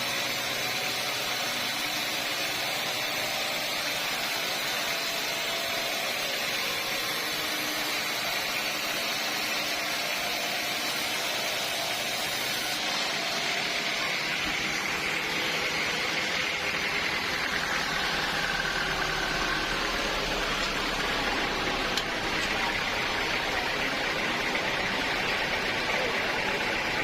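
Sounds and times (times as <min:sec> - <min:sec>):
sawmill saw machinery running: 0:00.0 - 0:27.0.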